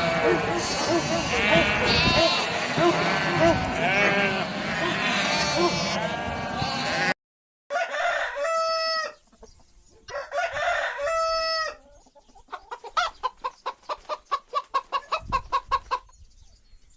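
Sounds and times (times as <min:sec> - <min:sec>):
chicken clucking: 0:00.0 - 0:07.0, 0:08.2 - 0:16.2
chicken crowing: 0:00.0 - 0:09.2, 0:10.1 - 0:11.8.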